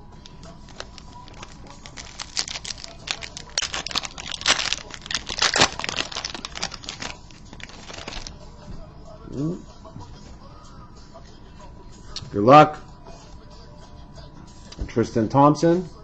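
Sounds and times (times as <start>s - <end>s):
foil wrapper crinkling: 0.6s - 8.4s.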